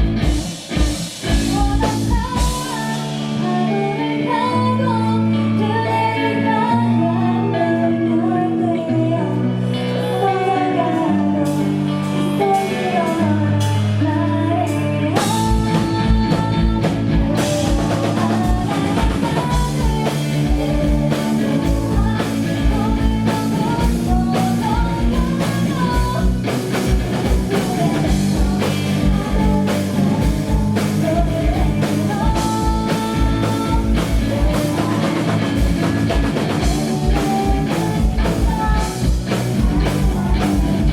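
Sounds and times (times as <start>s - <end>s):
live rock band playing: 0.0s - 40.9s
person singing: 0.0s - 40.9s
fast kick drum beat: 15.5s - 40.9s.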